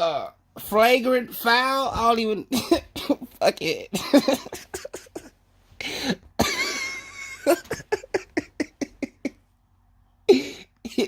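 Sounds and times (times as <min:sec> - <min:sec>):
man coughing: 0:02.5 - 0:09.3.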